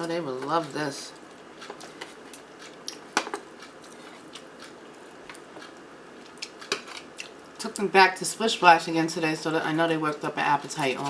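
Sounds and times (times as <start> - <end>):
close chewing mouth sounds: 0.6 - 7.6.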